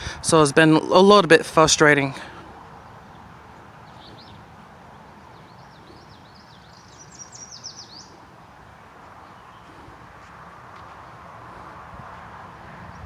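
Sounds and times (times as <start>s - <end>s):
distant highway traffic hiss: 0.0s - 13.0s
songbird singing into a trill: 2.7s - 8.3s.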